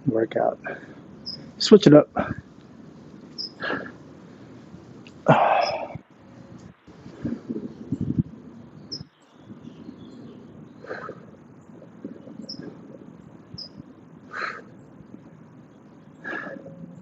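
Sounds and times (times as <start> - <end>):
steady background hiss: 0.0 - 17.0
high bird chirps: 1.2 - 1.6, 3.3 - 3.6, 5.5 - 6.0, 7.8 - 13.9.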